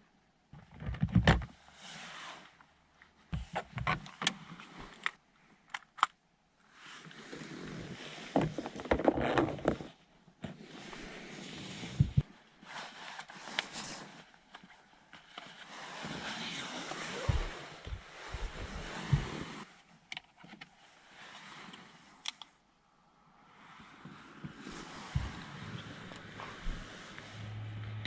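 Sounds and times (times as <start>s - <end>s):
rustling and scraping: 6.7s - 22.2s, 23.6s - 28.0s.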